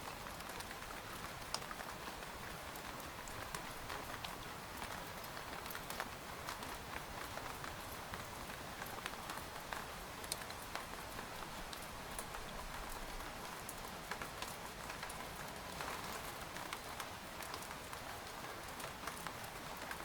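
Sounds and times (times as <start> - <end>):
rain pattering on a tent: 0.0 - 20.0.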